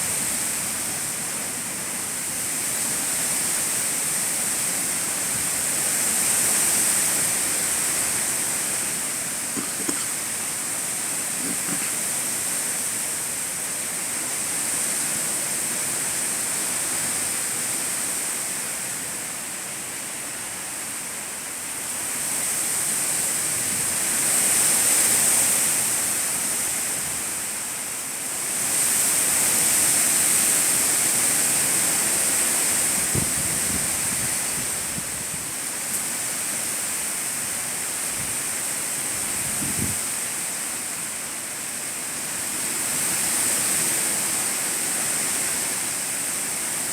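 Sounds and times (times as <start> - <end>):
strong wind: 32.7 - 35.6, 39.1 - 40.2.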